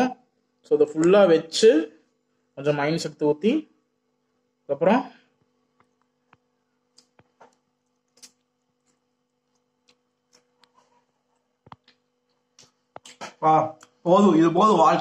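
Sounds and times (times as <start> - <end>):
faint steady hum: 0.0 - 15.0
mouth clicks of chewing: 6.9 - 10.8.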